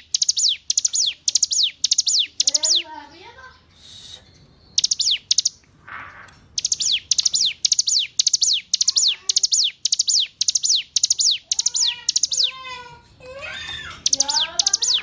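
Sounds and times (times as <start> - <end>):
soft low chirping: 0.0 - 2.9, 3.6 - 12.6
bird singing high stutter: 0.0 - 3.0, 3.7 - 12.9, 13.5 - 15.0.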